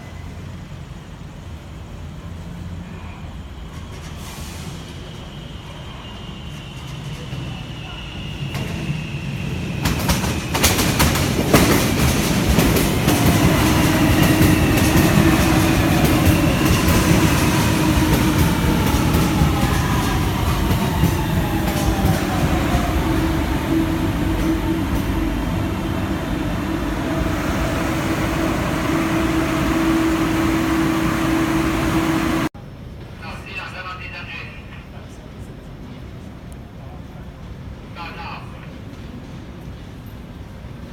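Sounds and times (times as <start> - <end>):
traction motor whine falling: 13.1 - 32.5
low hum: 13.4 - 32.5.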